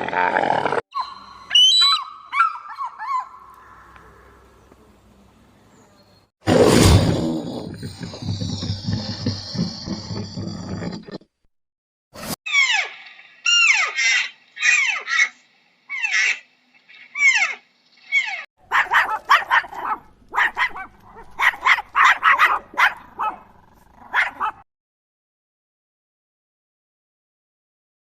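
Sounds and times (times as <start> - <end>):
dog barking: 18.7 - 24.6.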